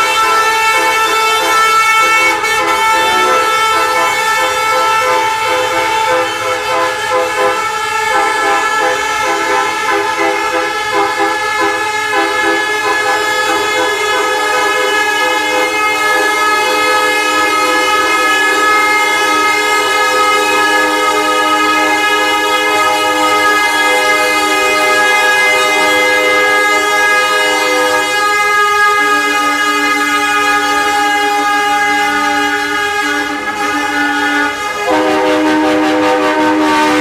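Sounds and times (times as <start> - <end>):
truck horns honking: 0.0 - 37.0.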